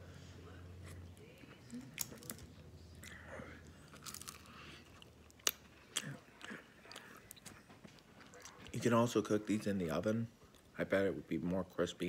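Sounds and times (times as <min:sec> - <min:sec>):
man chewing food: 0:00.8 - 0:08.9, 0:10.3 - 0:10.8.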